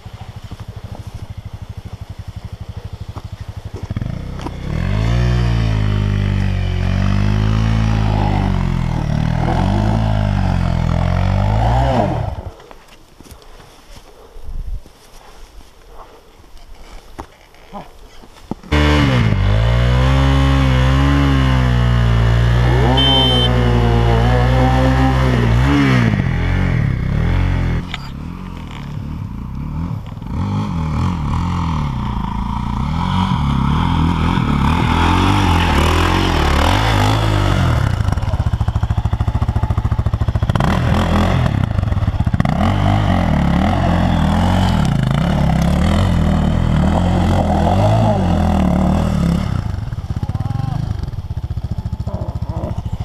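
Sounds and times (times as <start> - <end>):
motorcycle engine revving: 0.0 - 12.6, 18.7 - 53.0
motorcycle engines droning: 0.0 - 13.0, 17.3 - 53.0.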